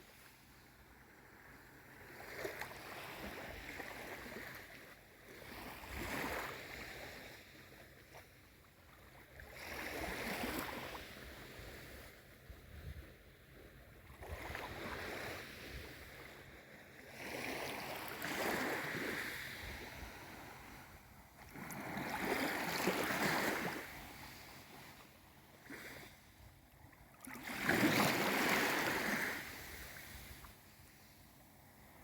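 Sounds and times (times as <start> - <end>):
small waves washing in: 13.5 - 32.0.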